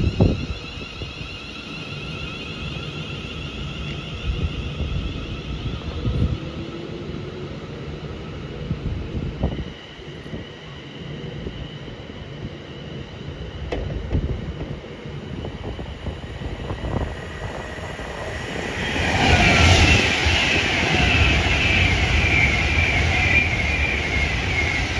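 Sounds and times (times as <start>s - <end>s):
train rumbling past: 0.0s - 24.9s.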